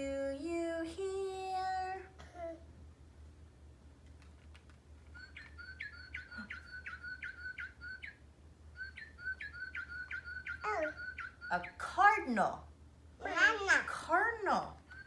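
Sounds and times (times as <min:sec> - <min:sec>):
cardinal song whistles: 0:05.2 - 0:11.8.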